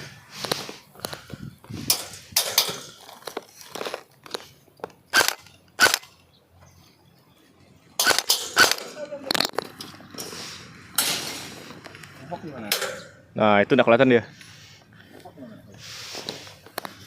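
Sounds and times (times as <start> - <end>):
airsoft guns firing: 5.1 - 6.2, 8.0 - 9.0.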